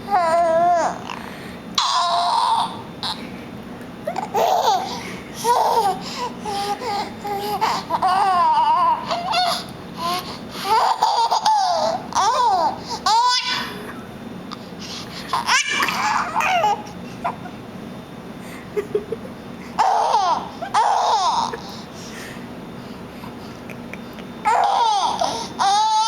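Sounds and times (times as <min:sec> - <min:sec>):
baby cooing and squealing: 0:01.8 - 0:03.2, 0:04.1 - 0:13.8, 0:15.3 - 0:17.5, 0:19.8 - 0:21.7, 0:24.5 - 0:26.0.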